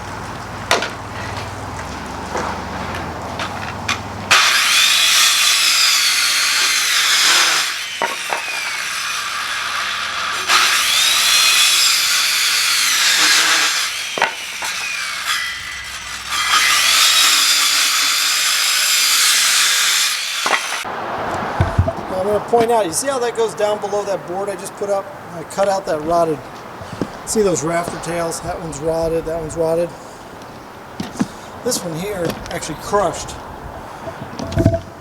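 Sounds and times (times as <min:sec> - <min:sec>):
power saw cutting wood: 0:00.7 - 0:25.0
sharp knocks: 0:21.3 - 0:22.8, 0:34.1 - 0:35.0.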